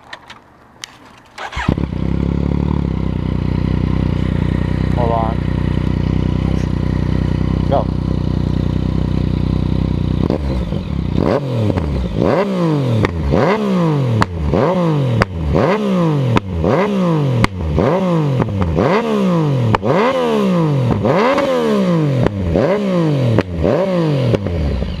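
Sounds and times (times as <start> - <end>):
exhaust cracks: 0.0 - 9.3
motorcycle engine revving: 1.0 - 25.0.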